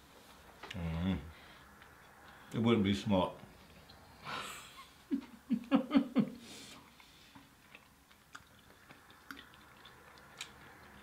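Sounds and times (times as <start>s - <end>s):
faint chewing: 6.7s - 11.0s.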